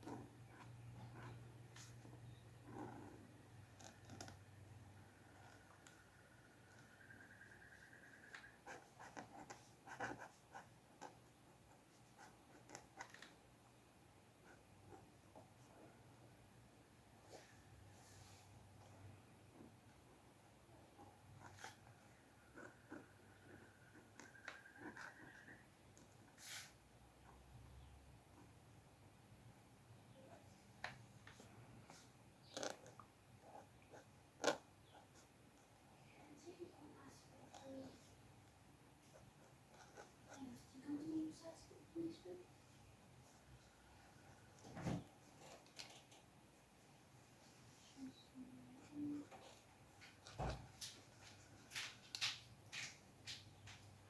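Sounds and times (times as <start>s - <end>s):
pencil scratching on paper: 5.0s - 13.3s, 20.9s - 26.8s, 39.0s - 41.5s, 48.0s - 50.3s
pen tapping and scratching paper: 21.4s - 26.2s, 49.1s - 53.9s.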